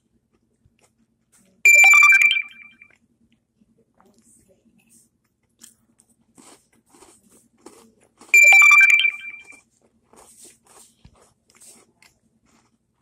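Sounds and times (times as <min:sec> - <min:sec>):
crunching and chewing cookie: 0:00.0 - 0:01.7, 0:02.9 - 0:13.0
loud ringing tone: 0:01.7 - 0:02.9, 0:08.4 - 0:09.6.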